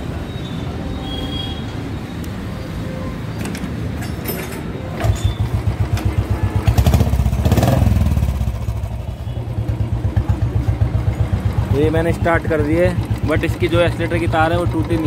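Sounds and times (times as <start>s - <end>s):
motorcycle engine starting and idling: 3.3s - 15.0s.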